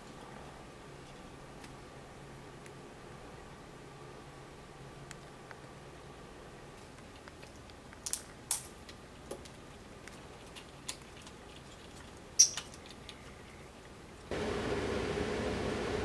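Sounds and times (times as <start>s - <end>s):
parrots clicking on wooden perches: 12.4s - 13.2s.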